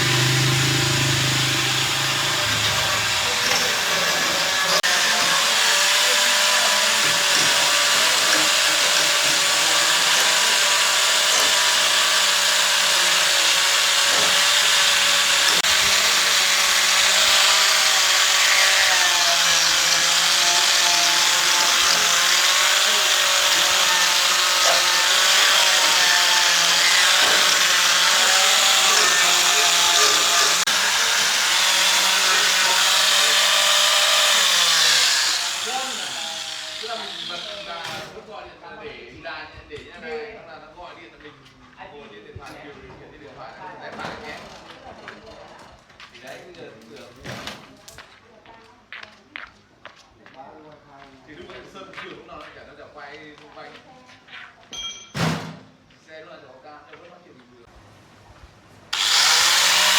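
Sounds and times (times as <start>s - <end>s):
power tool motor running: 0.0s - 38.2s, 58.9s - 59.9s.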